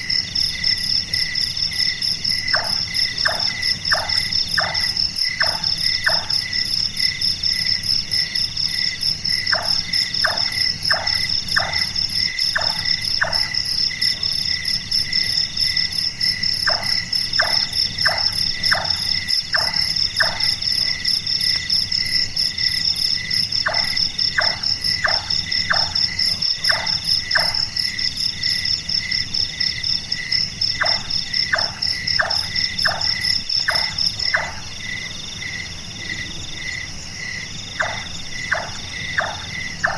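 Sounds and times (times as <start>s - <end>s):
insects chirring: 0.0s - 39.9s
nightjar knocking call: 2.5s - 6.4s, 9.4s - 13.7s, 16.6s - 20.6s, 23.6s - 27.8s, 30.8s - 34.7s, 37.8s - 39.9s.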